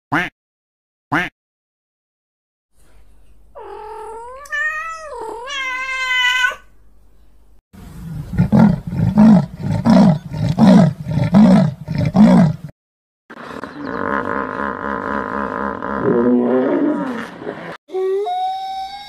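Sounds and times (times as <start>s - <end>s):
animal deep grunting roar: 8.2s - 12.7s, 13.4s - 17.8s.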